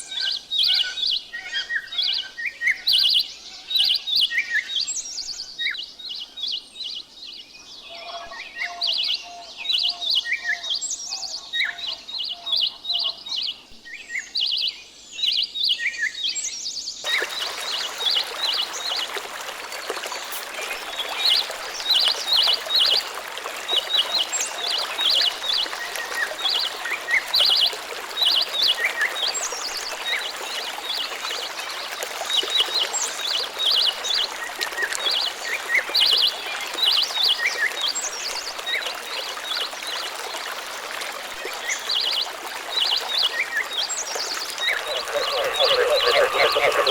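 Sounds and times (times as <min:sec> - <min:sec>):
running water hiss: 0:17.0 - 0:46.9
small birds chirping: 0:42.8 - 0:46.9.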